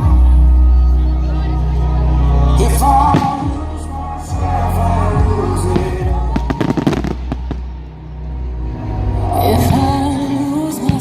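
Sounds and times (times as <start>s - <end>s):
loud pop music: 0.0s - 7.9s, 9.0s - 11.0s
fireworks bangs and crackles: 5.7s - 7.7s.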